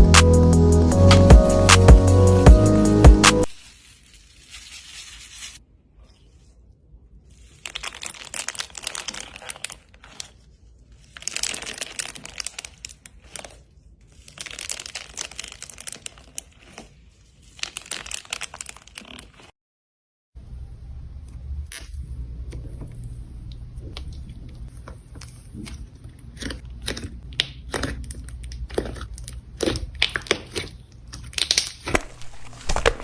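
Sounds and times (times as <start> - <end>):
slime crackling and popping: 7.5 - 10.4, 29.6 - 33.0.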